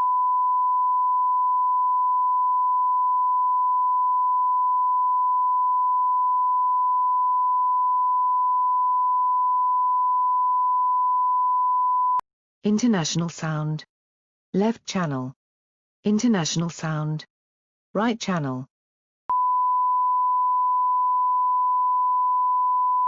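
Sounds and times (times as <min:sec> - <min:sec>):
steady sine wave tone: 0:00.0 - 0:12.2, 0:19.3 - 0:23.0.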